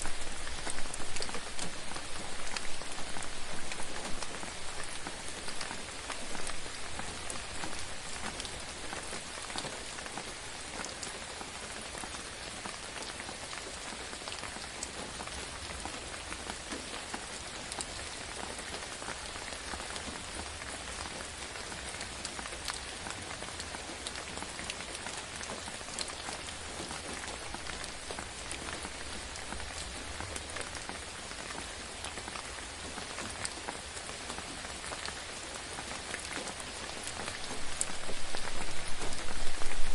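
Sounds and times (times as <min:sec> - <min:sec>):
rain hissing: 0:36.6 - 0:39.9.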